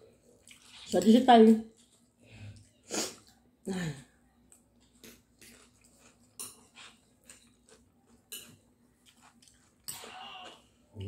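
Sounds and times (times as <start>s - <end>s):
chewing: 0.3s - 1.0s, 4.4s - 10.7s.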